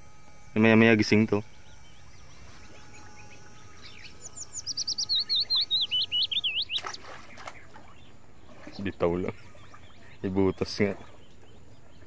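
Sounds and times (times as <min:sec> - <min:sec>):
small bird singing high chirps: 0:01.4 - 0:09.0.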